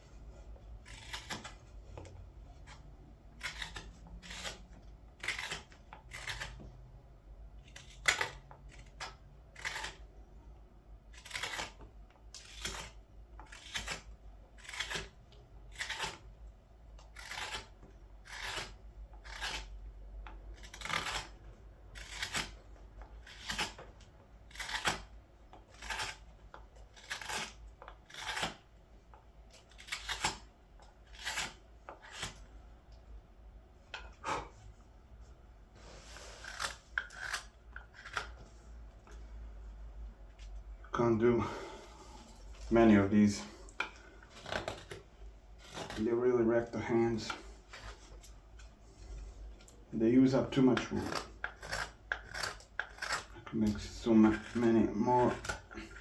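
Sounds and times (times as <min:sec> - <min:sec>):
carving knife slicing wood: 0:00.6 - 0:06.8, 0:07.6 - 0:10.2, 0:11.0 - 0:32.5, 0:35.8 - 0:38.4, 0:42.8 - 0:48.3, 0:49.6 - 0:56.0.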